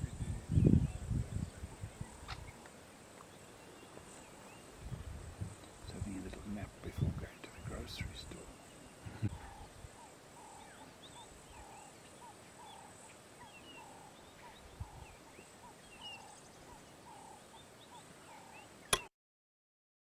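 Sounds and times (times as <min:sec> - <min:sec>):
higher bird chirps: 0:07.0 - 0:19.0.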